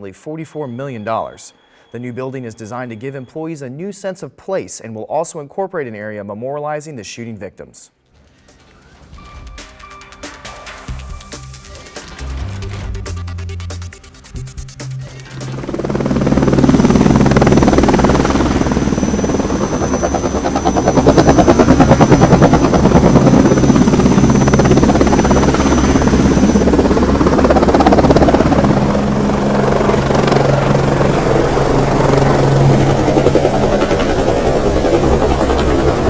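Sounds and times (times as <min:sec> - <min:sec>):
helicopter rotor beating: 0:10.2 - 0:36.0
helicopter engine drone: 0:10.4 - 0:36.0.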